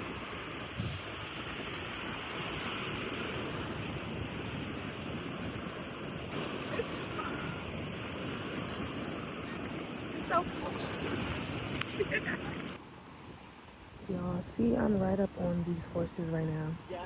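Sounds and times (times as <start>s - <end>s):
wind buffeting microphone: 0.0s - 12.8s
ocean surf: 0.0s - 14.0s.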